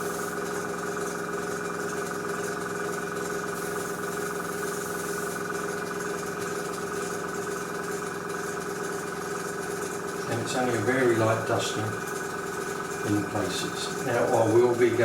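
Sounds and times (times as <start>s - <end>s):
airbrush hissing: 0.0s - 0.5s, 3.6s - 5.3s
compressor humming: 0.0s - 15.0s.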